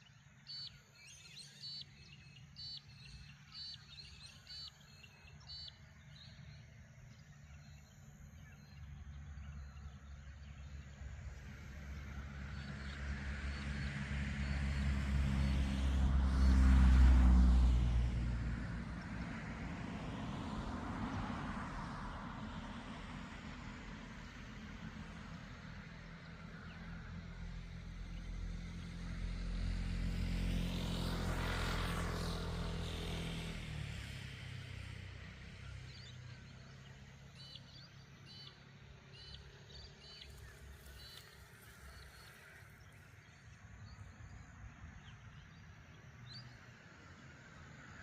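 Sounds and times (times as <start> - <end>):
bird chirping: 0.4 - 10.9, 35.9 - 44.1
vehicle driving past: 8.7 - 48.0.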